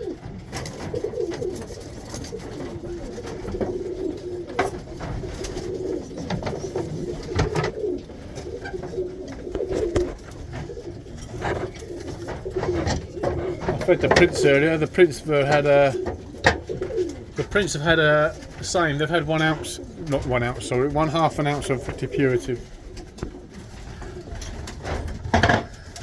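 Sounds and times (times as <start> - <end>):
pigeons cooing: 0.0 - 26.0.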